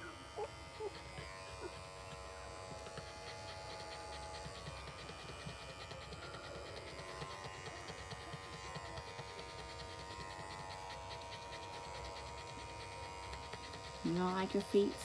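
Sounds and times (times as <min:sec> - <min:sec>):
electric clippers humming: 0:00.0 - 0:15.0.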